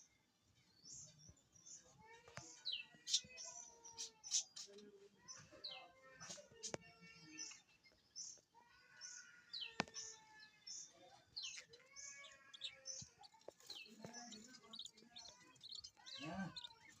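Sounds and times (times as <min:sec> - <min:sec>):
budgerigars chirping: 0:02.7 - 0:04.8, 0:11.2 - 0:17.0.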